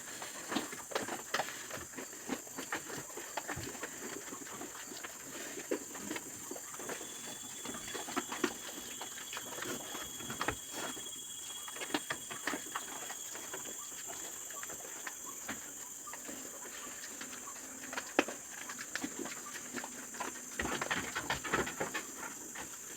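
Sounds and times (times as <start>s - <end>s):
pigs clicking and scuffling: 0.0s - 22.9s.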